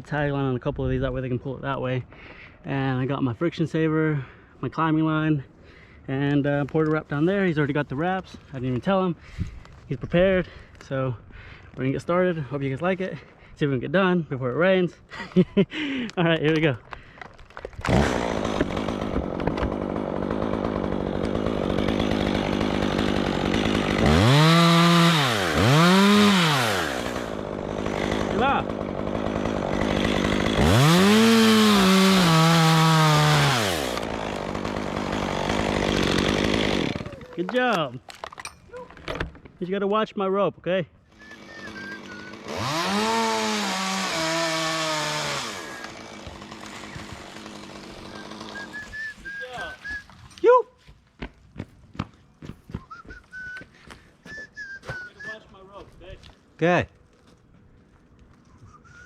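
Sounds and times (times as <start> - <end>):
chainsaw idling and revving: 17.6 - 37.6, 41.1 - 50.1.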